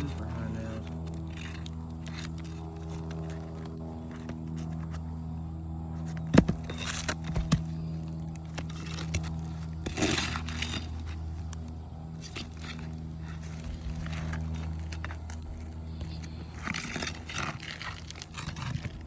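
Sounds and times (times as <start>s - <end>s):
nail scraping: 0.0s - 5.0s
steady low hum: 0.0s - 19.0s
sharp knocks on shingle: 6.2s - 7.8s.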